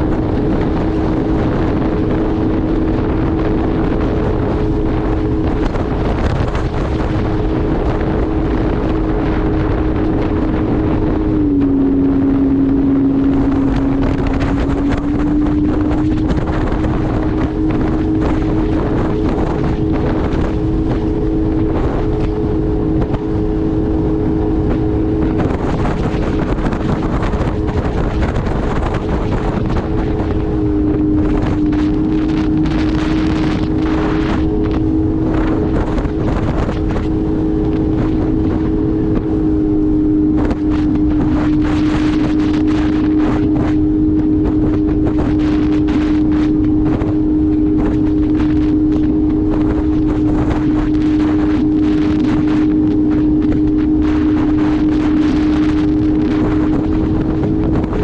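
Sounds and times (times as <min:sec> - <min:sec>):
jet ski engine running: 0:00.0 - 0:58.0
wind buffeting microphone: 0:00.0 - 0:58.0.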